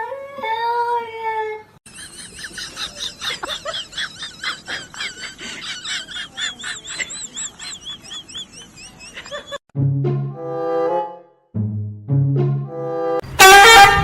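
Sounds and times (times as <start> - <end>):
small birds chirping: 6.6 - 9.5.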